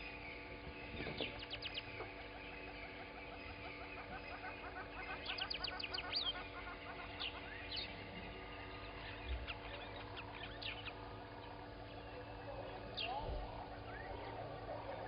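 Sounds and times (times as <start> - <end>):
bird chirps and trills: 0.0 - 15.0
wild birds chorus: 0.0 - 15.0.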